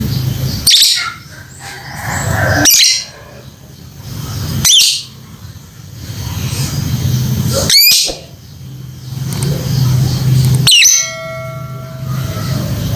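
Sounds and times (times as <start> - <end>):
low steady rumble: 0.0 - 12.9
lovebird sharp calls: 7.6 - 8.4.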